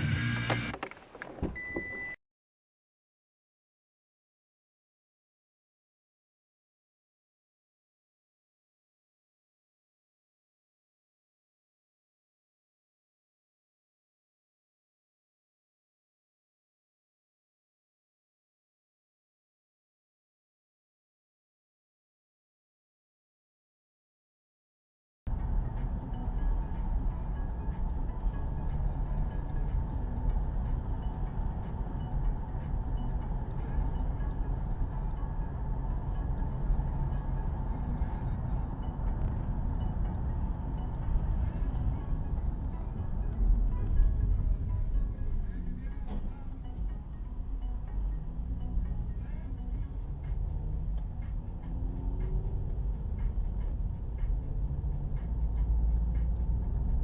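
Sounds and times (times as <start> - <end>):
car engine rumble: 0.0 - 2.2, 25.3 - 57.0
road noise: 0.0 - 2.2, 25.3 - 57.0.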